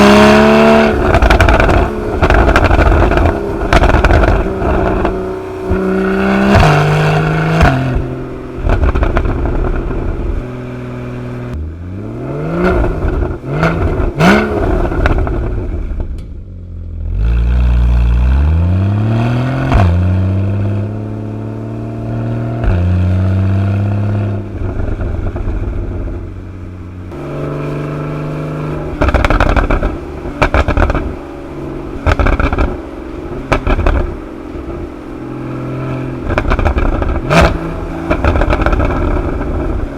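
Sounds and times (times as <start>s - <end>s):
exhaust pops and crackles: 0.0s - 10.5s, 12.8s - 16.5s, 24.4s - 26.3s, 28.9s - 31.2s, 32.0s - 34.8s, 36.1s - 39.9s
car engine revving: 0.0s - 39.9s.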